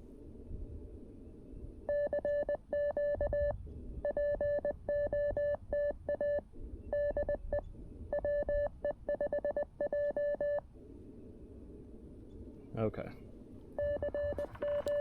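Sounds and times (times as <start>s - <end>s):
morse code beeps: 1.9s - 6.4s, 7.0s - 10.6s, 13.8s - 15.0s.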